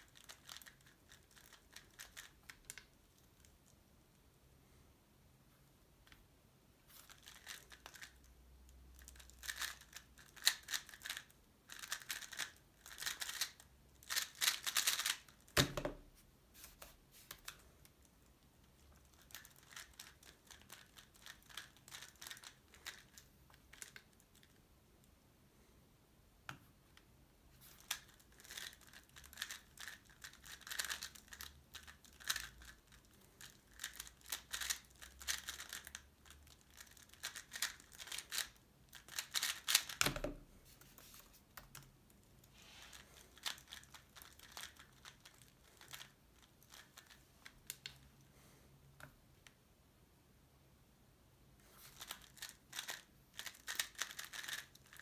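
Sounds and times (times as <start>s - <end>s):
puzzle cube clicking and rattling: 0.0s - 2.9s, 7.0s - 8.2s, 9.1s - 15.8s, 18.7s - 24.4s, 27.7s - 40.2s, 42.9s - 48.0s, 51.8s - 55.0s.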